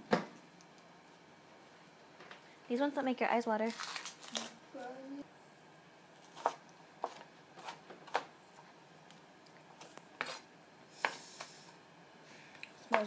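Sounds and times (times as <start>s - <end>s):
knife chopping onion: 6.3s - 8.3s.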